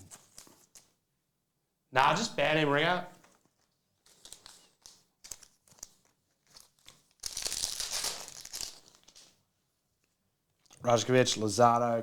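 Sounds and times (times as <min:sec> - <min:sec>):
foil wrapper crinkling and tearing: 0:03.4 - 0:09.4.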